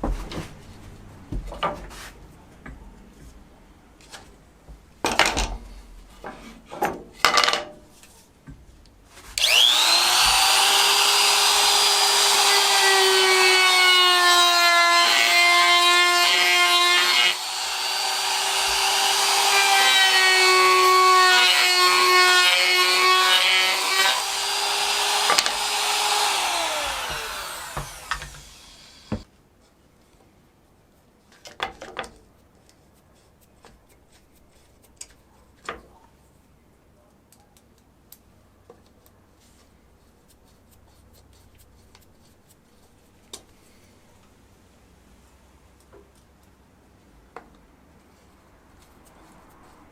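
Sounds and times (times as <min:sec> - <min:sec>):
power tool whining cutting wood: 0:09.4 - 0:29.2.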